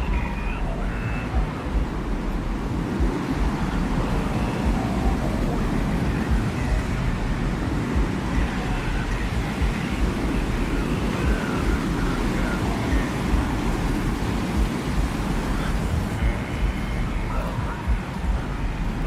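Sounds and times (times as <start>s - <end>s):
gusting wind rumble: 0.0s - 19.0s.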